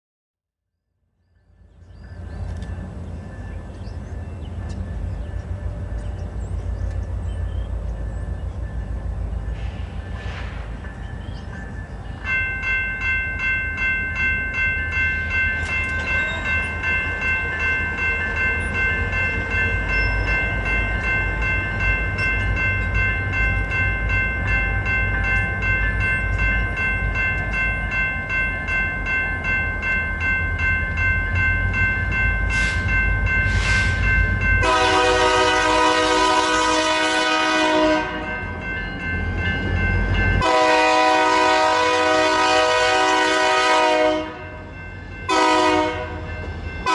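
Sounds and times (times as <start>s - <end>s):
diesel locomotives rumbling: 1.3s - 46.9s
bell ringing steadily: 10.8s - 35.9s, 38.0s - 42.4s, 44.2s - 46.9s
locomotive horn blast: 34.6s - 38.4s, 40.4s - 44.6s, 45.3s - 46.3s.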